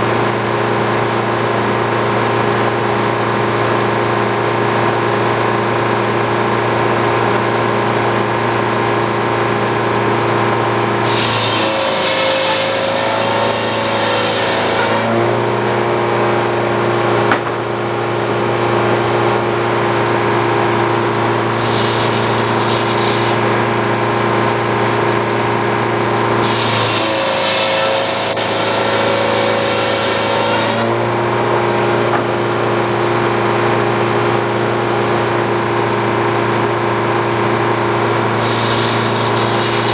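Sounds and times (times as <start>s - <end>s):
sawmill power unit running: 0.0s - 39.9s
circular saw cutting log: 10.6s - 15.7s, 20.2s - 31.3s, 37.6s - 39.9s.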